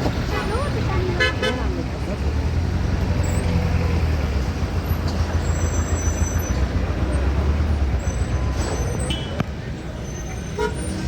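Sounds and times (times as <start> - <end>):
heavy vehicle engine rumble: 0.0 - 11.0.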